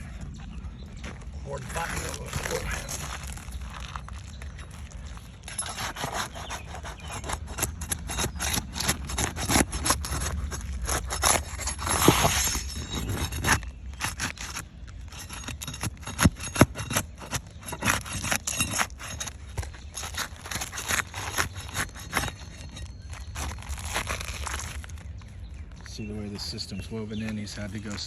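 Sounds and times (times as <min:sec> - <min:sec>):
metal tool scraping roof shingles: 0:05.4 - 0:25.0.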